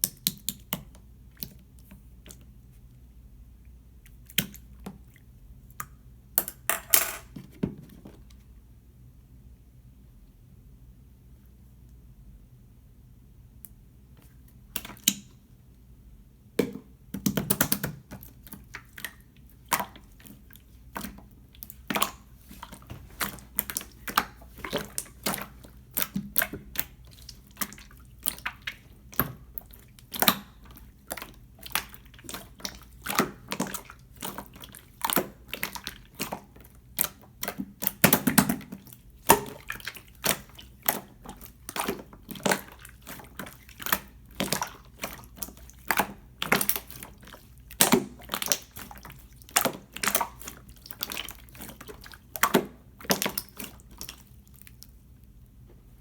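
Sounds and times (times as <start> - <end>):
slime squished by hand: 17.2 - 55.3.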